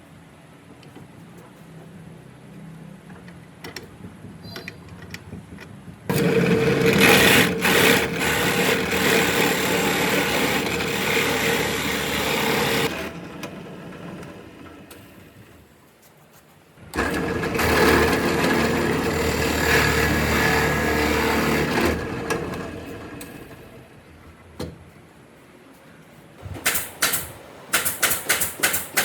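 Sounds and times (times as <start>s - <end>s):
power tool running: 6.1s - 15.2s, 16.9s - 23.8s.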